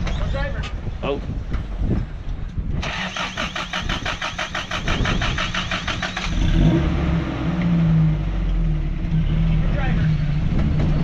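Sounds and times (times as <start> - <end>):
starter cranking engine: 2.8 - 6.8
engine running and revving: 2.8 - 11.0.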